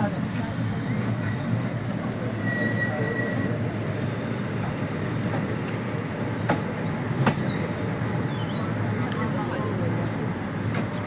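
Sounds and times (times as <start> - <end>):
train coaches rumbling: 0.0 - 11.0
high squeal: 0.2 - 5.1.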